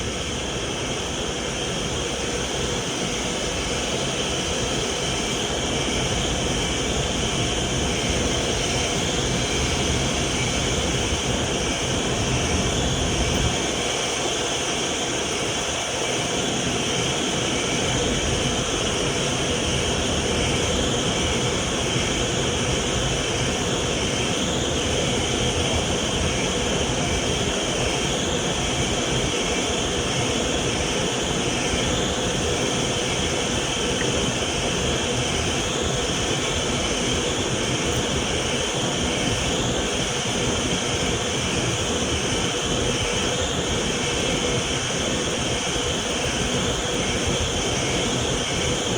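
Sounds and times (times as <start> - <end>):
vacuum cleaner running: 0.0 - 48.9.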